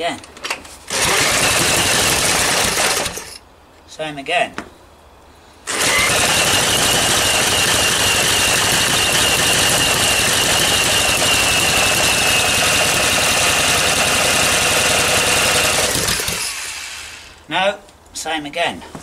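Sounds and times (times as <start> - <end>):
small engine cranking without firing: 0.9 - 3.4, 5.7 - 17.4
starter motor whine: 0.9 - 3.4, 5.7 - 17.4.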